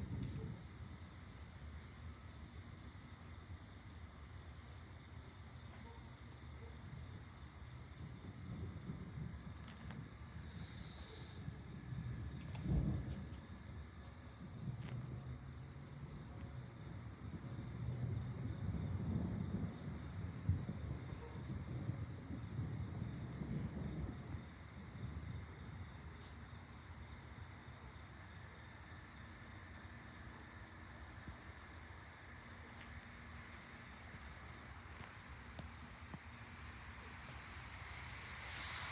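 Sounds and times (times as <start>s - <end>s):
crickets chirping: 0.0s - 38.9s
thunder rumbling: 7.8s - 25.9s.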